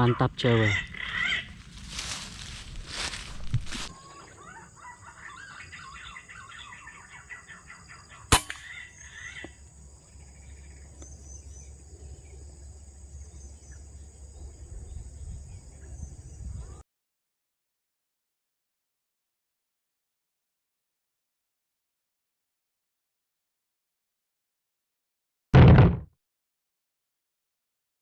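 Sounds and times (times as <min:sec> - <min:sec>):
birds chirping: 0:00.0 - 0:09.4
air rifle shot: 0:25.6 - 0:26.1.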